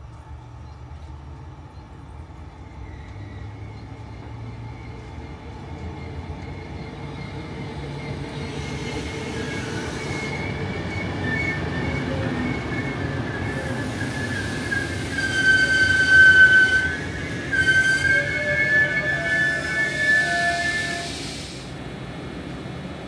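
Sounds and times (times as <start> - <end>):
train rumble: 0.0 - 23.0
high-pitched wheel squeal: 6.0 - 21.4.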